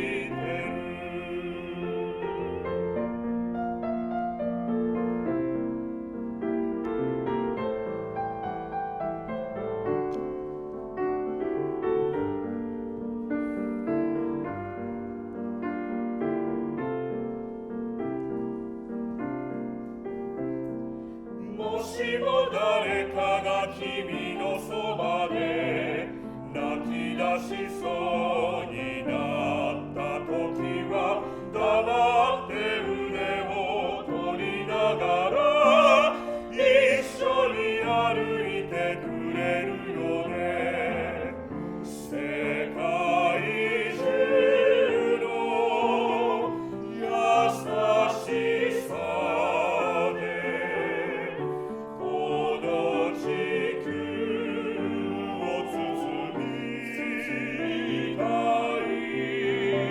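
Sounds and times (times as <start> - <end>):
opera voices singing: 0.0 - 3.5, 21.1 - 59.9
piano accompaniment: 0.0 - 59.9.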